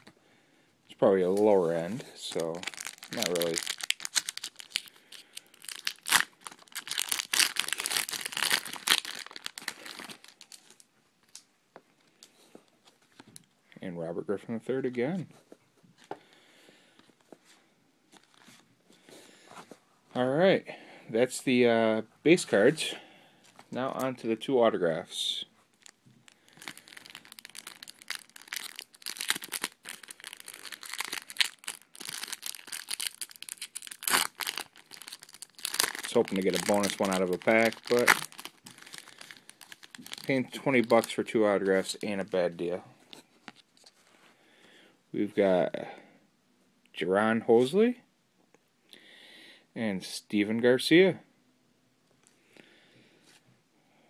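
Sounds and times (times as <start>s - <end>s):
plastic wrapper crinkling: 1.2s - 13.5s, 18.1s - 18.6s, 25.7s - 44.1s.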